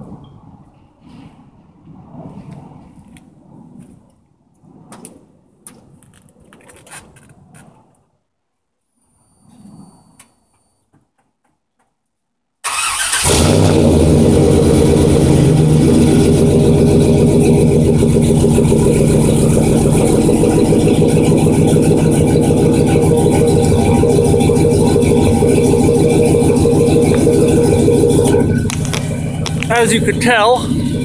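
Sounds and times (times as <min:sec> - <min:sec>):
car engine starting and idling: 0:12.6 - 0:31.0.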